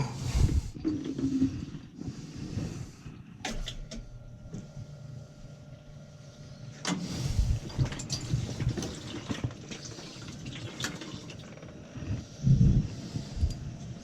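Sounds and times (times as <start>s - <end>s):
water pouring and splashing: 7.6s - 11.7s.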